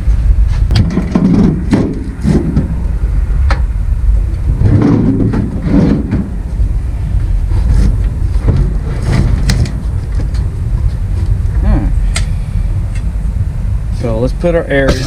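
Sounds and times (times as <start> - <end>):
low rumble: 0.0 - 15.0
objects knocking and clunking: 0.7 - 2.8, 4.6 - 6.4, 7.6 - 11.3.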